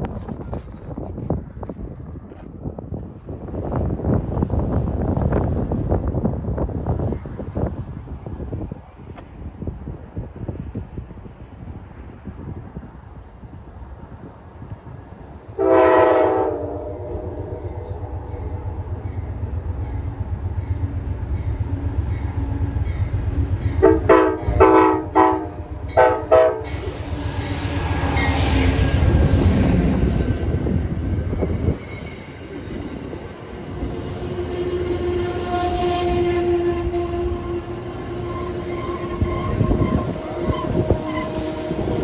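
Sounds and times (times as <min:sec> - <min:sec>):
locomotive roaring past: 0:11.0 - 0:42.0
train horn blasts: 0:15.6 - 0:18.5, 0:23.7 - 0:29.3, 0:34.2 - 0:42.0
train wheel squeal: 0:26.7 - 0:30.3, 0:31.2 - 0:42.0.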